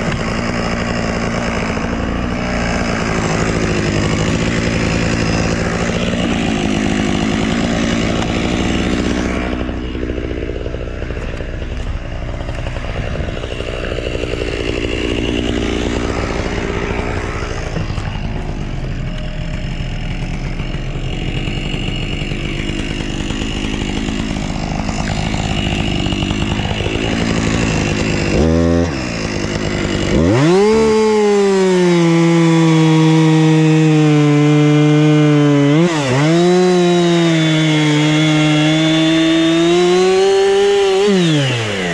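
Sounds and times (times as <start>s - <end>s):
chainsaw revving and cutting wood: 0.0s - 41.9s.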